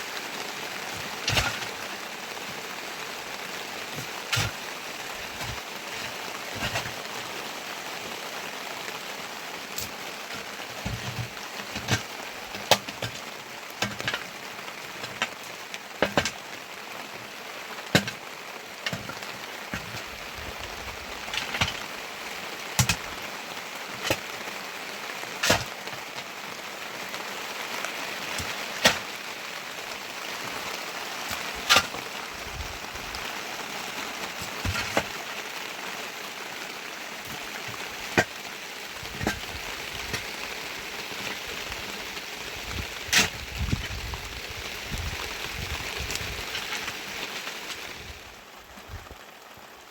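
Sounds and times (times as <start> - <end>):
steady rain: 0.0 - 49.9
heavy drops tapping: 34.4 - 35.2.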